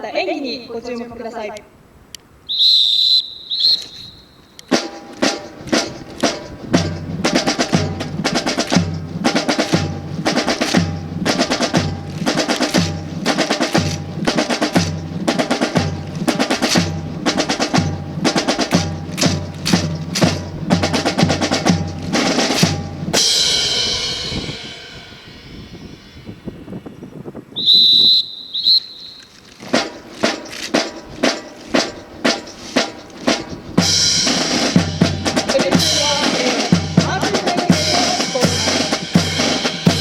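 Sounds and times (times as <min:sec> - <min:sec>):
marching snare and bass drums: 0:04.6 - 0:26.8, 0:29.4 - 0:40.0
cymbal crash ringing: 0:04.7 - 0:26.8.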